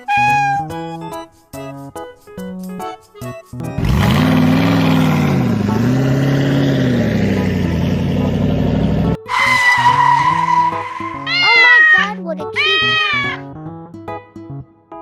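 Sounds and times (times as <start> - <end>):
car engine revving: 3.7 - 11.3
steady high squeal: 9.3 - 12.0.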